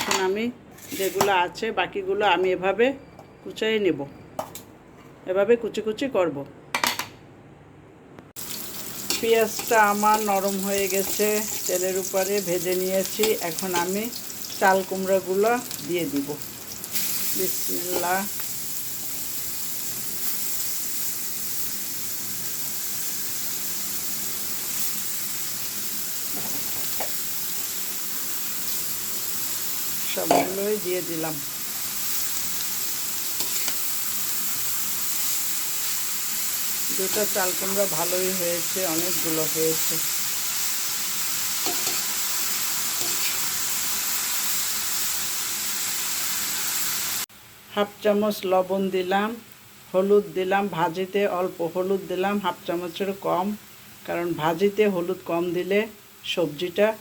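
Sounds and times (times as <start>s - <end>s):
oil and onions sizzling in pot: 8.4s - 57.0s.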